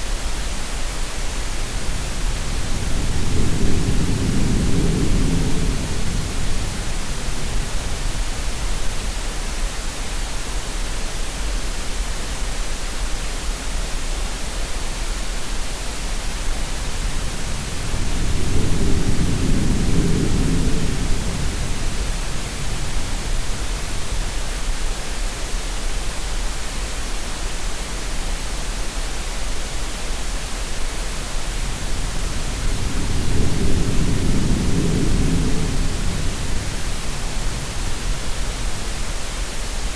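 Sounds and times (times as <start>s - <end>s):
steady noise hiss: 0.0s - 39.9s
surf swells: 29.7s - 39.9s.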